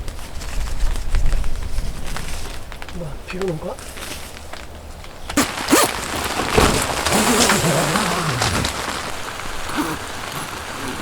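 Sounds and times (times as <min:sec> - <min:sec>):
rain pattering: 0:01.1 - 0:11.0
raindrops knocking: 0:05.3 - 0:11.0.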